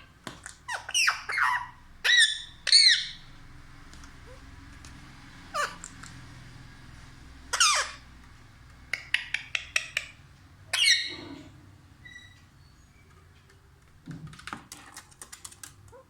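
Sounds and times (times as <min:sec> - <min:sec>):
parrot squawks: 0:00.7 - 0:03.3, 0:05.5 - 0:06.0, 0:07.5 - 0:08.1, 0:08.9 - 0:12.4.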